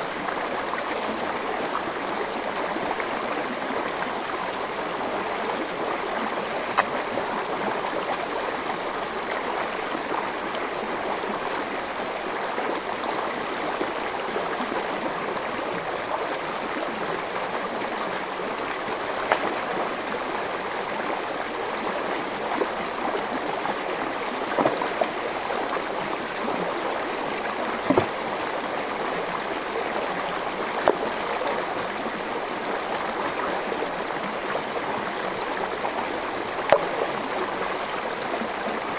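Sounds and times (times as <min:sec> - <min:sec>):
stream flowing over rocks: 0:00.0 - 0:38.9
sharp water splashes: 0:27.7 - 0:28.4.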